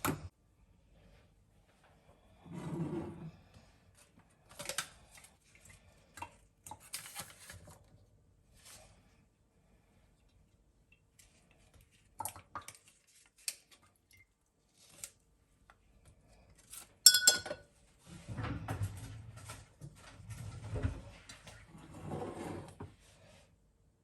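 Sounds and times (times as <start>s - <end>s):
dishes clattering: 17.1s - 17.6s
glass clinking: 17.1s - 17.6s.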